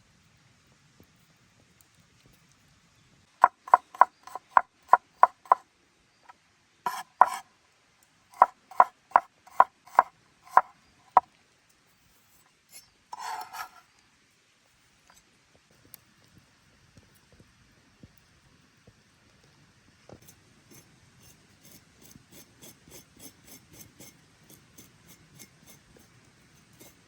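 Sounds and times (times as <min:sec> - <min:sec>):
knife chopping on wooden board: 0:03.4 - 0:05.6, 0:06.9 - 0:07.4, 0:08.4 - 0:10.7
scraping noise: 0:13.1 - 0:13.9.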